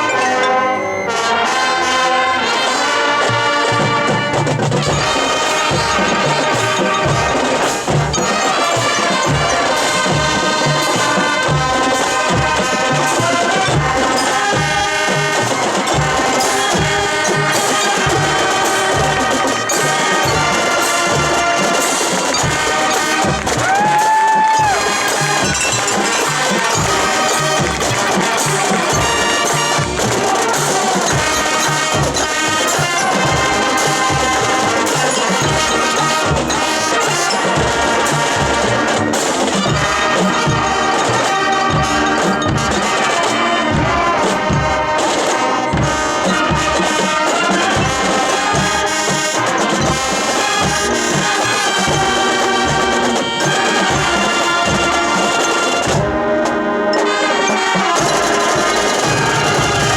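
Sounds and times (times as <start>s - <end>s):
marching band brass: 0.0s - 59.9s
bass drum beat: 22.2s - 36.6s.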